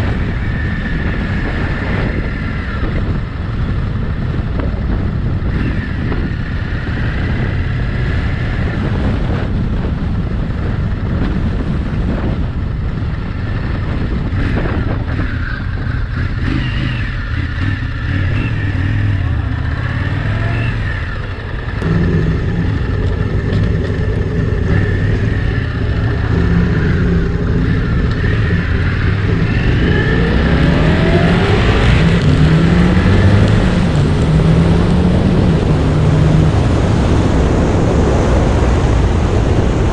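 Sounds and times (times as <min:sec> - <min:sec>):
motorcycle engine: 0:00.0 - 0:39.9
wind rumble on microphone: 0:00.0 - 0:39.9.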